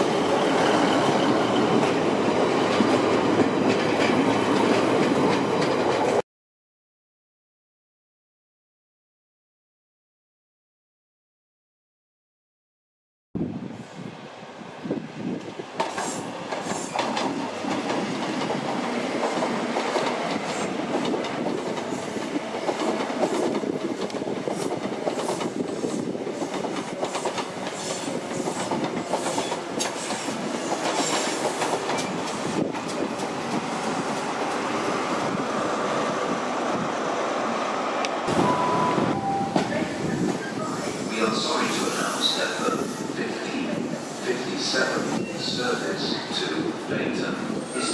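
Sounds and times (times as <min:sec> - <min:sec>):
train rumble: 0:13.5 - 0:47.9
train wheels clacking over rail joints: 0:15.8 - 0:34.7.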